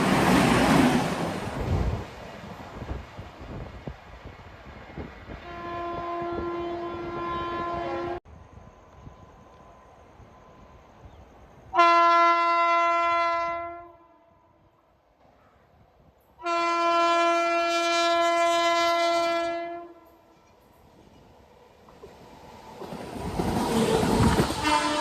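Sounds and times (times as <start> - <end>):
locomotive horn blasts: 5.4 - 8.2, 11.7 - 14.4, 16.4 - 20.2, 24.6 - 25.0.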